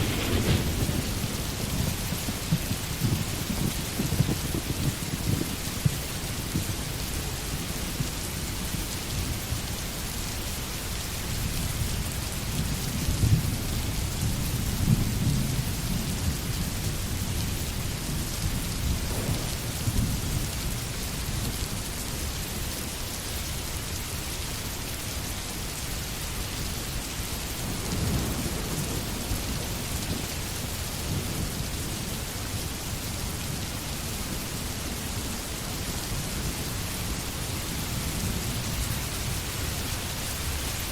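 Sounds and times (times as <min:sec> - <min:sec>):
rolls of thunder: 0:00.0 - 0:06.9, 0:12.9 - 0:21.6, 0:27.6 - 0:32.1
steady rain: 0:00.0 - 0:40.9.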